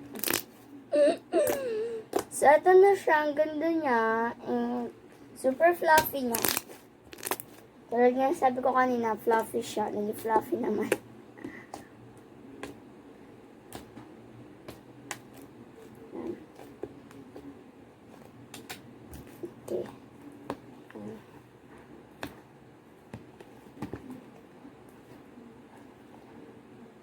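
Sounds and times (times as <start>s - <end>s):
hands squishing slime: 0.1s - 0.5s, 5.9s - 7.6s, 13.7s - 21.4s.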